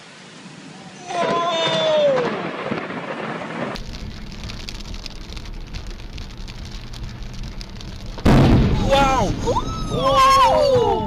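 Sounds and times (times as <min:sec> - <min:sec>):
heavy rain on a car: 0:00.0 - 0:11.0
person shouting: 0:01.0 - 0:02.3, 0:08.8 - 0:11.0
low steady rumble: 0:03.8 - 0:11.0.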